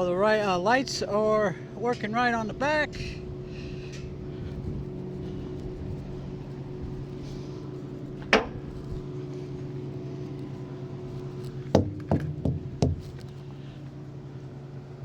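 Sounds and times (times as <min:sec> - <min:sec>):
diesel engine idling: 0:00.0 - 0:15.0
sharp knocks: 0:11.7 - 0:13.2.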